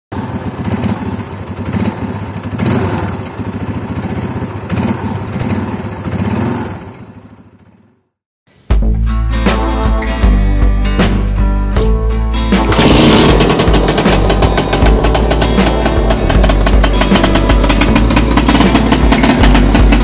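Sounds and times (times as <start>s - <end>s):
engine running with rapid pulse: 0.1s - 8.2s, 12.5s - 20.0s.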